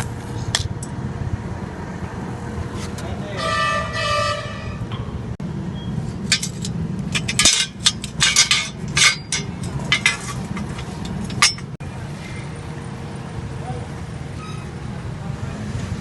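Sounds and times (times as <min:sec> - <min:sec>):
street traffic rumble: 0:00.0 - 0:16.0
metallic clinks of steel pieces: 0:06.3 - 0:11.8.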